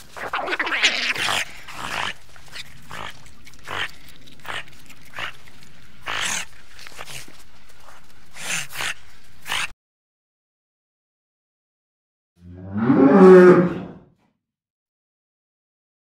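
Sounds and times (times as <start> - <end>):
otters calling squeakily: 0.0 - 5.4.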